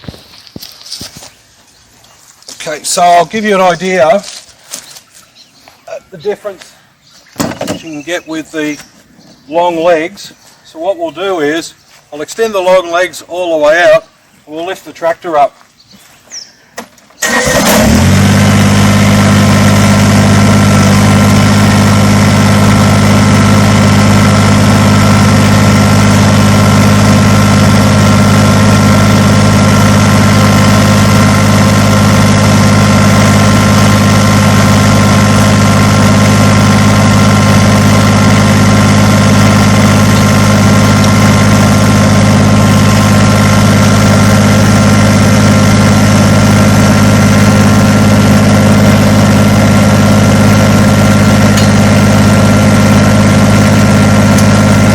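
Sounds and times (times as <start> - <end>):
tractor diesel engine running: 0.0 - 1.3, 17.2 - 54.9.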